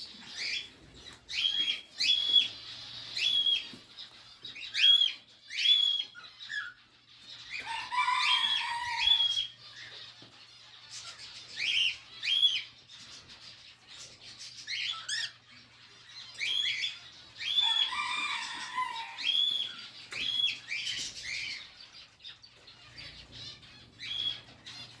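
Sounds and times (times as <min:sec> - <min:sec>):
birds whistling high notes: 0:07.6 - 0:09.6, 0:16.3 - 0:21.6, 0:23.0 - 0:25.0.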